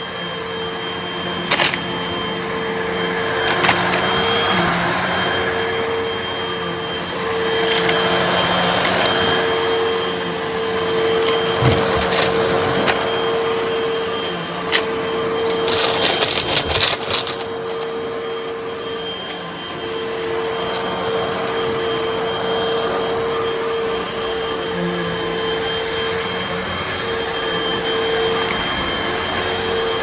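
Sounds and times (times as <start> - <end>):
vacuum cleaner motor hum: 0.0 - 30.0
debris crackling in vacuum: 14.7 - 18.4.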